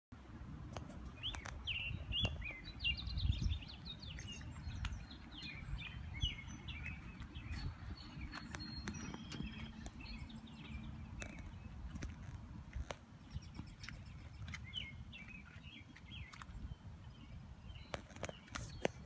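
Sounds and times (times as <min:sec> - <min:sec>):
songbirds chirping and singing: 0:00.8 - 0:19.0
low microphone rumble: 0:01.6 - 0:17.8.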